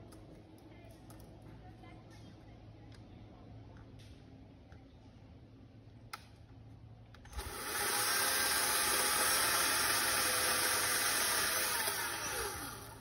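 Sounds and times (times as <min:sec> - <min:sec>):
electric chainsaw running: 0:07.3 - 0:13.0.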